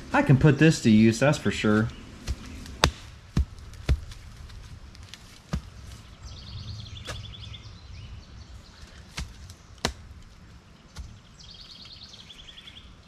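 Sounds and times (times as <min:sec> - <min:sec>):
shovel chopping into dirt: 0:02.2 - 0:04.2.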